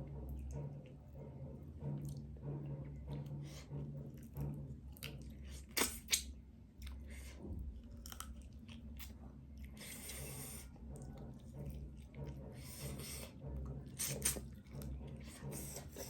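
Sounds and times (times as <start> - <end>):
wet chewing with clicks: 4.2 - 16.0.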